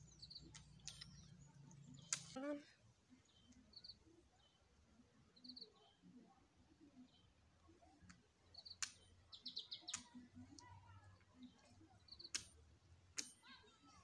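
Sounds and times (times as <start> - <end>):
small birds trilling: 0.0 - 4.8, 8.4 - 12.6
sharp clicks: 2.0 - 2.4, 9.8 - 10.2, 12.3 - 12.6, 13.2 - 13.4.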